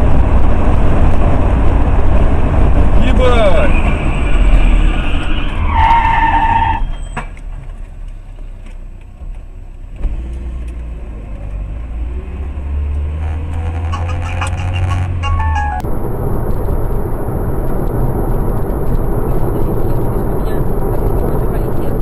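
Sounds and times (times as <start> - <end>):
car road and engine noise: 0.0 - 22.0
low rumble: 11.9 - 22.0
high-pitched tone: 13.2 - 15.9.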